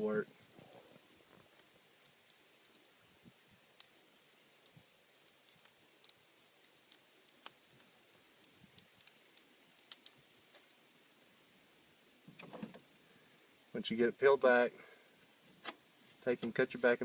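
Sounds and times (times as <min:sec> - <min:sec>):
backing paper peeling crackle: 0:01.0 - 0:03.0, 0:04.6 - 0:10.8.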